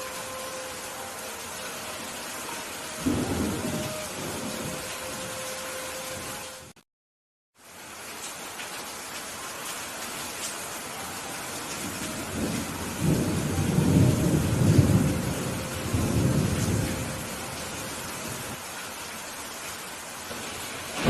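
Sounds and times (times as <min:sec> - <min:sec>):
rain hissing: 0:00.0 - 0:06.8, 0:07.6 - 0:21.0
rolling thunder: 0:03.0 - 0:05.3, 0:12.2 - 0:18.6, 0:20.4 - 0:21.0.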